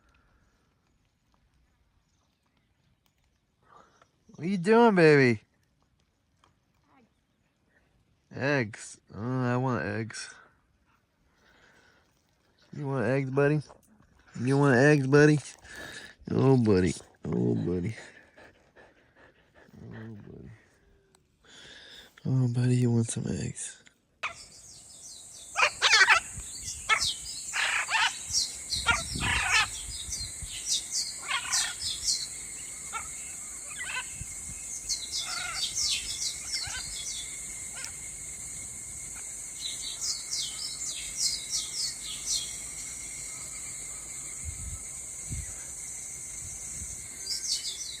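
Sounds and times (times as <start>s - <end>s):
wild birds chirping and trilling: 24.2s - 48.0s.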